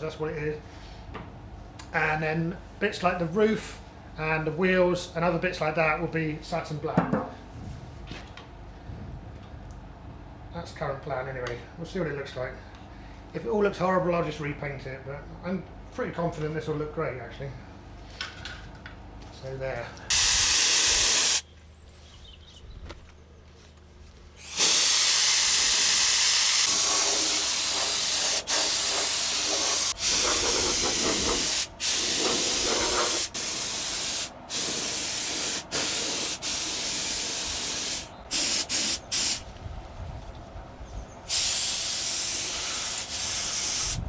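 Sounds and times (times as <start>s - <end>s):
paint spray gun hissing: 20.1s - 21.4s, 24.4s - 39.4s, 41.3s - 44.0s.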